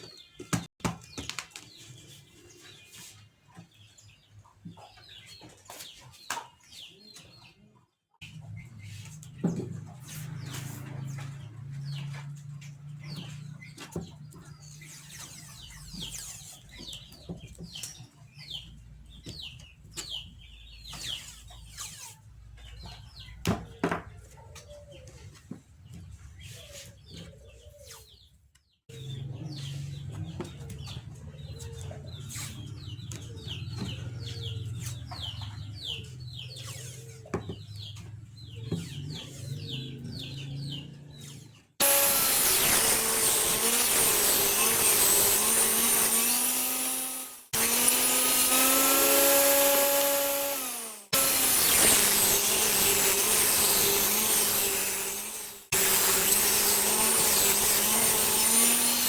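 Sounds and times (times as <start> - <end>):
birds chirping: 0.0 - 55.9
chicken clucking: 22.6 - 27.8, 29.0 - 36.6.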